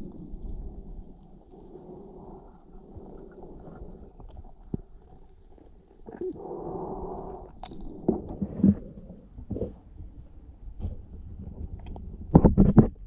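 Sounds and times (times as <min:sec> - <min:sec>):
underwater gurgling and sloshing: 0:00.0 - 0:13.0
sharp pops and knocks: 0:12.3 - 0:13.0.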